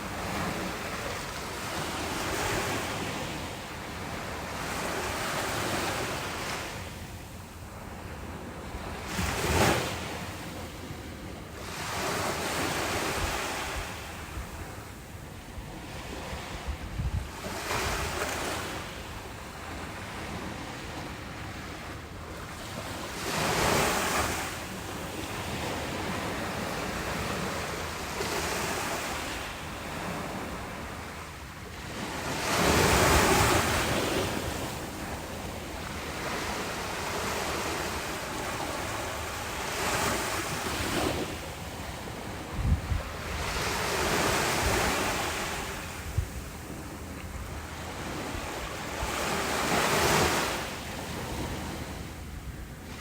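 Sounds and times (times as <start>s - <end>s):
ocean waves breaking on beach: 0.0s - 53.0s
wind buffeting microphone: 16.0s - 18.6s, 39.8s - 50.5s.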